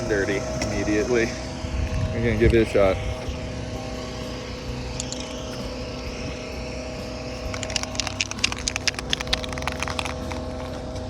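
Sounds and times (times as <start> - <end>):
steady mechanical hum: 0.0 - 11.0
sharp clicks or rattles: 5.0 - 5.4, 7.5 - 10.8.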